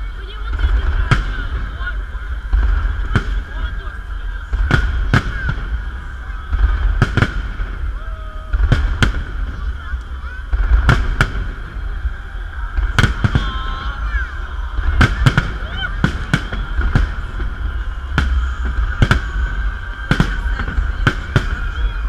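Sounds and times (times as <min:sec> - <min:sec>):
firework shells bursting with bangs: 0:00.4 - 0:22.0.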